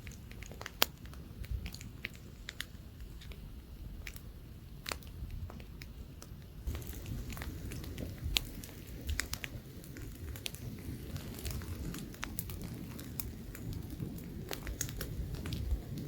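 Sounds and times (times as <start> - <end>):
campfire crackling: 0.0 - 16.0
low wind rumble: 0.0 - 16.0.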